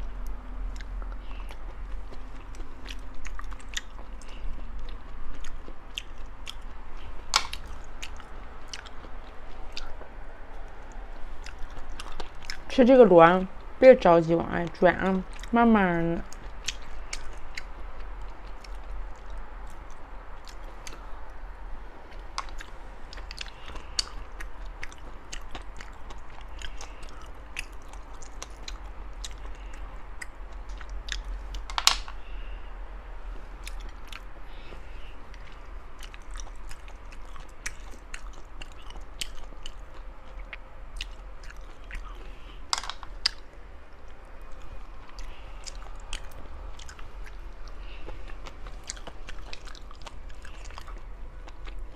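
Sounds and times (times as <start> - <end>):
chewing and biting sea snails: 0.0 - 13.8, 14.5 - 51.9
small sharp clicks and snaps: 31.6 - 32.2.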